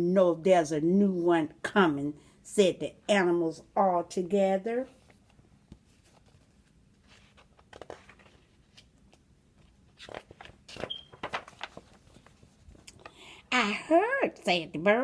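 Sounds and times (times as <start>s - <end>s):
picture book rustling and clicking: 4.9s - 13.2s.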